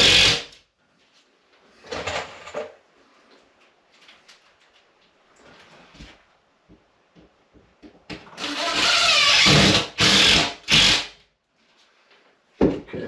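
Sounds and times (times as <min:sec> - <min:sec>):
cordless drill driving screws: 0:00.0 - 0:00.4, 0:08.4 - 0:11.1.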